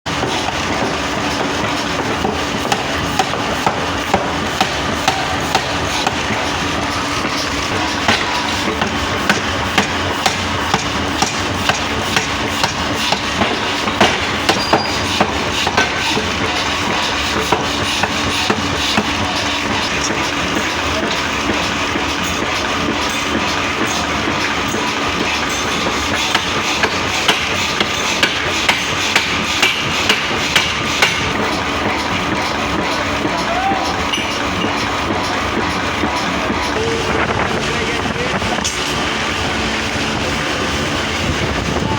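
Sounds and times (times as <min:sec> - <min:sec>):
machine running with low hum: 0:00.1 - 0:41.9
sharp metal knocks: 0:25.5 - 0:31.4.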